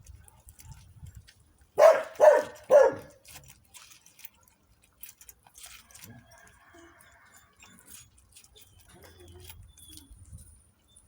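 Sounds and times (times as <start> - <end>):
dog barking: 1.8 - 3.2.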